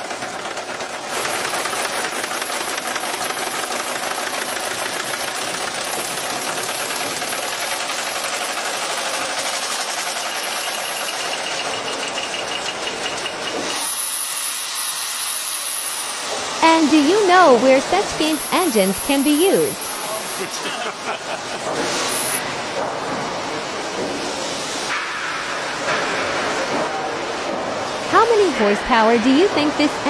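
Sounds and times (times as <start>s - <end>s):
large engine mechanical clatter: 0.0s - 13.8s.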